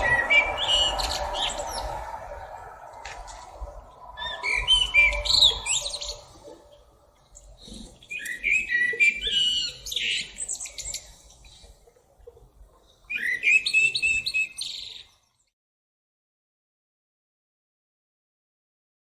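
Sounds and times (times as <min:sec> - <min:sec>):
thrush singing whistled phrases: 0:00.0 - 0:06.8.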